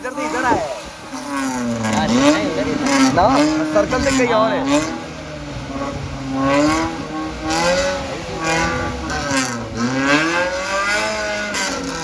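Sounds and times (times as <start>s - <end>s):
off-road engines revving: 0.0s - 12.0s.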